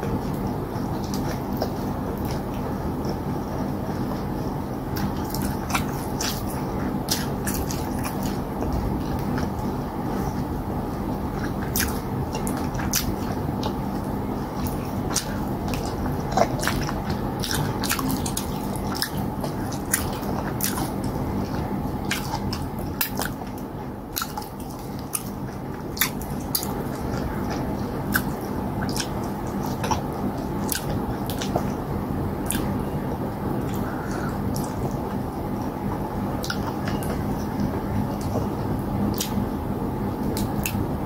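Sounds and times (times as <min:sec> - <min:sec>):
person chewing close to microphone: 0:00.0 - 0:41.0
steady low hum: 0:00.0 - 0:41.0
mouth clicks and smacks: 0:11.2 - 0:32.8, 0:33.5 - 0:39.5.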